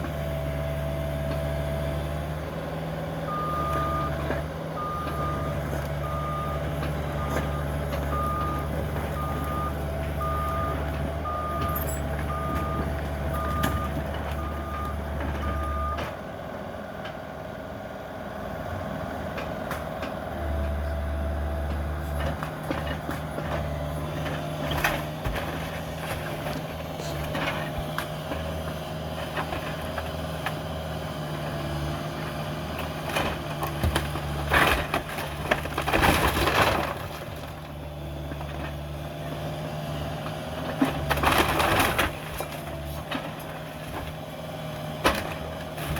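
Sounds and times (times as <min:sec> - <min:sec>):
excavator diesel engine running: 0:00.0 - 0:45.9
backup alarm beeping: 0:07.2 - 0:16.0.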